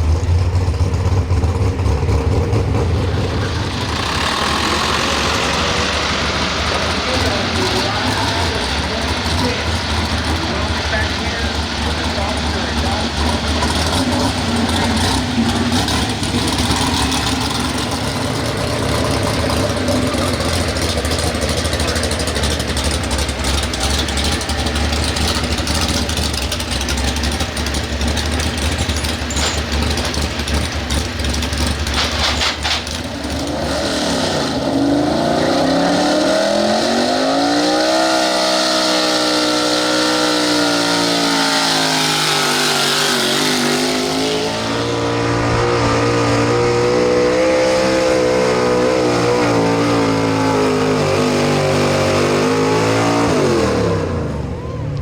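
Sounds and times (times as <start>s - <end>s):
truck engine rumbling and revving: 0.0s - 55.0s.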